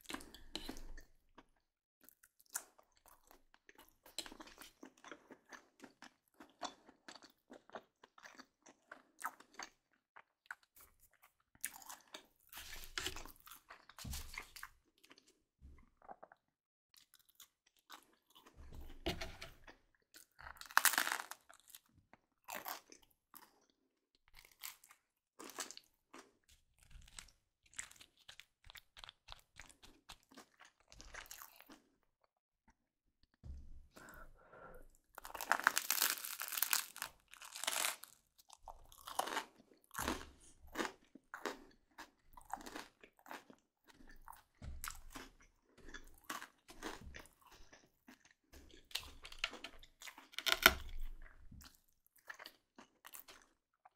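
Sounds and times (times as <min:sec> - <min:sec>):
crunchy chewing: 0:24.4 - 0:31.9, 0:35.1 - 0:53.6.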